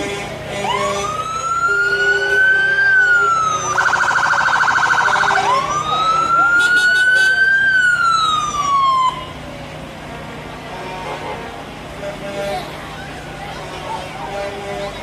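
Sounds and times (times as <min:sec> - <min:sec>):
emergency vehicle siren: 0:00.6 - 0:09.5.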